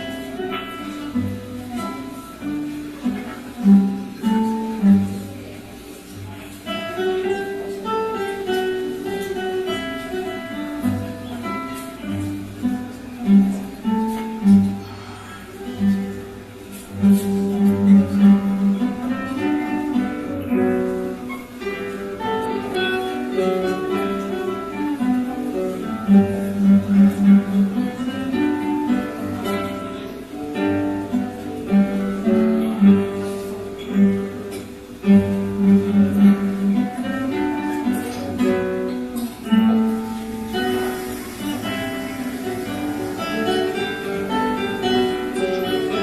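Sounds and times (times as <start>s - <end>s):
acoustic guitars playing: 0.0s - 46.0s.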